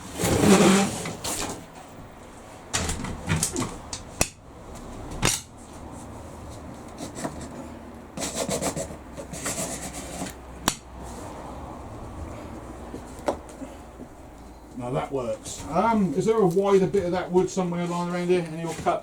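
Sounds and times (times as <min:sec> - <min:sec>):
wood scraping against wood: 0:00.1 - 0:01.6, 0:06.4 - 0:11.5.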